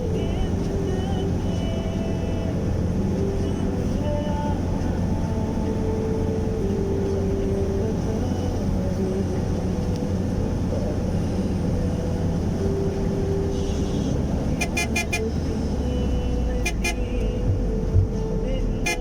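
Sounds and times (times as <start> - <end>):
vehicle engine rumbling: 0.0 - 19.0
short horn toots: 13.7 - 15.3.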